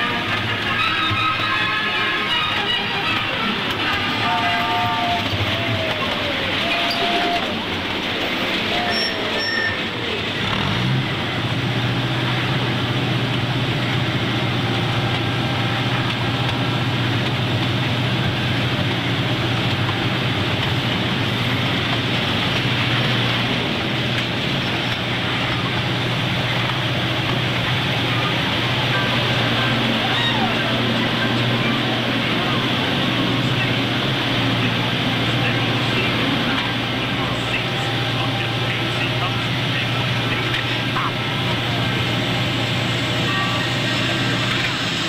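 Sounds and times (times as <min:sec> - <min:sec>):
train rolling on track: 0:00.0 - 0:45.0.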